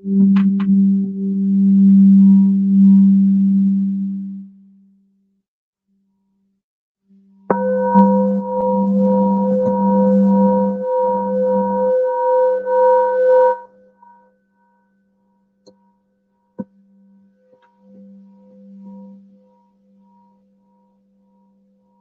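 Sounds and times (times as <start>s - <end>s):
singing bowl ringing: 0.0s - 3.8s, 7.4s - 22.0s
low steady tone: 0.0s - 5.0s, 7.1s - 22.0s
mallet rubbing friction noise: 7.5s - 11.9s.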